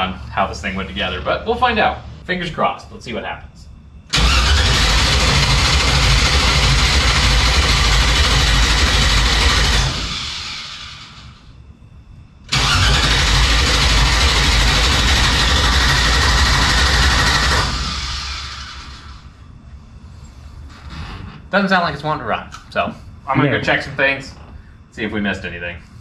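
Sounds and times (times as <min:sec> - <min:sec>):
starter motor cranking engine: 0:04.1 - 0:11.3, 0:12.5 - 0:19.3.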